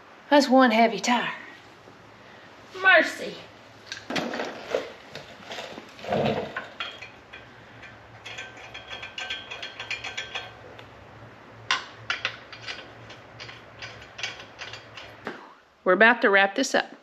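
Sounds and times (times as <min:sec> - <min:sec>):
steady low hum: 0:00.0 - 0:16.0
hand ratchet clicking: 0:06.8 - 0:10.9, 0:11.7 - 0:15.3.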